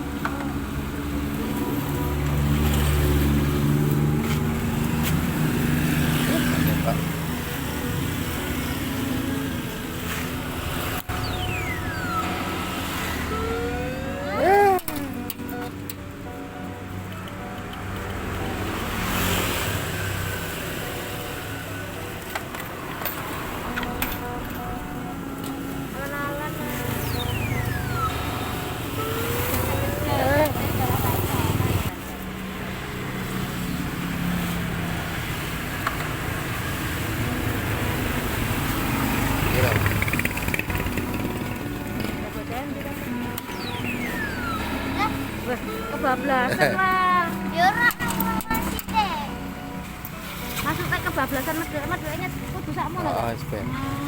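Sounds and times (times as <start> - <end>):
traffic-like background hum: 0.0 - 54.0
electronic gliding tones: 5.4 - 17.6, 18.4 - 32.0, 37.1 - 54.0
wavering electronic tone: 5.6 - 17.5, 23.4 - 32.0, 37.3 - 47.6.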